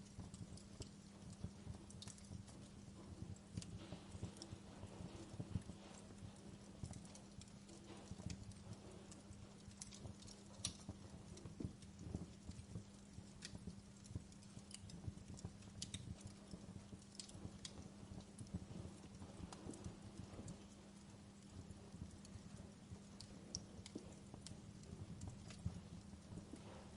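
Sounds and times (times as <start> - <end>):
logs crackling and popping: 0.0 - 26.9
low rumble of flames: 0.0 - 26.9.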